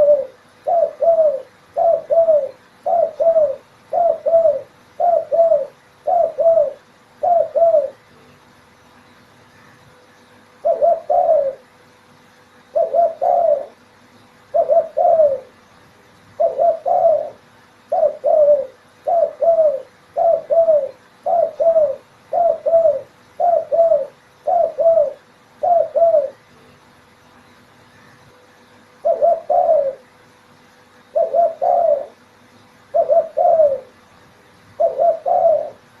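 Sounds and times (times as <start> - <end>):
dove cooing: 0.0 - 8.1, 10.6 - 11.7, 12.7 - 15.6, 16.4 - 26.5, 28.9 - 30.2, 31.0 - 34.0, 34.7 - 36.0.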